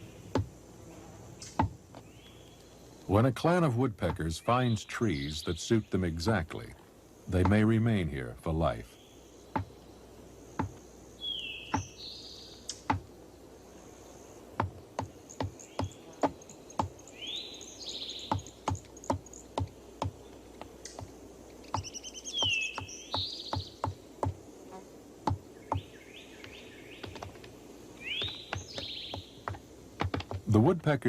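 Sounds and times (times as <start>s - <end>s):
woodpecker tapping on bark: 1.4s - 2.4s, 7.4s - 7.6s, 9.5s - 9.9s, 10.5s - 10.9s, 11.7s - 12.0s, 12.7s - 13.1s, 14.6s - 17.1s, 18.2s - 24.4s, 25.2s - 31.0s
short chirping calls: 21.6s - 23.8s.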